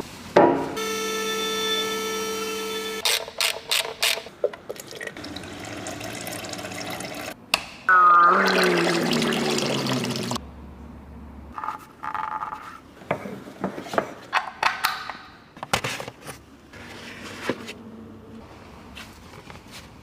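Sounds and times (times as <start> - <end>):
water pouring: 4.7 - 7.4, 8.2 - 10.4.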